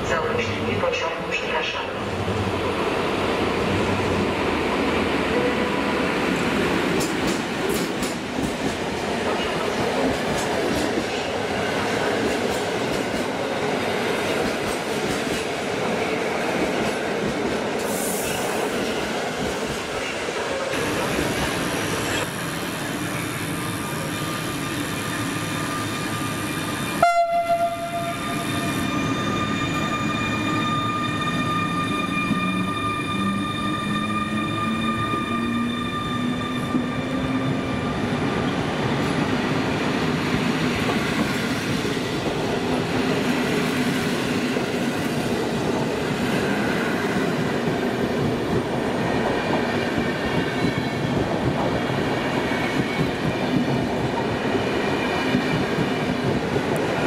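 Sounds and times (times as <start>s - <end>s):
electric train whine: 20.4s - 57.0s.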